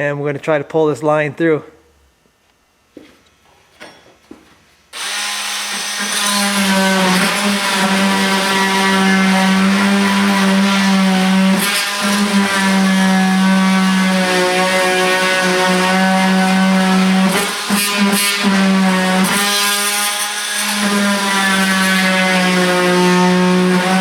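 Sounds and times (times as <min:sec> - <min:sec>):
electric power tool cutting: 0:05.0 - 0:24.0.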